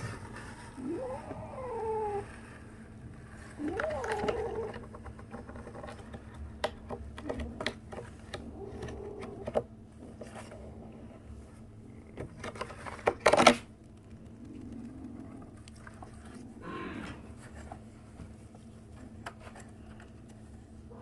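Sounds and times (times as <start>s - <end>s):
kitten mewing: 3.6s - 4.9s.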